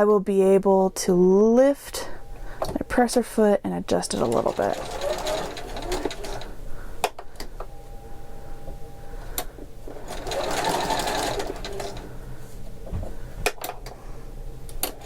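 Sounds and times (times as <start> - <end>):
sewing machine stitching: 4.1 - 6.5, 10.0 - 12.1.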